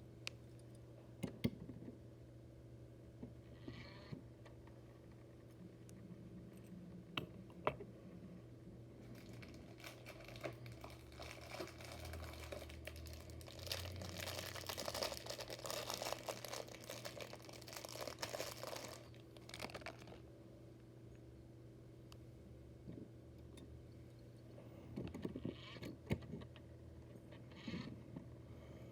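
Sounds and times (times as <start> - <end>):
plastic bag crinkling: 9.0 - 20.3.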